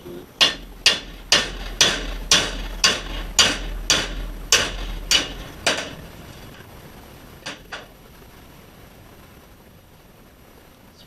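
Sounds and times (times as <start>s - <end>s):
hammer striking metal: 0.4s - 6.6s, 7.5s - 8.0s.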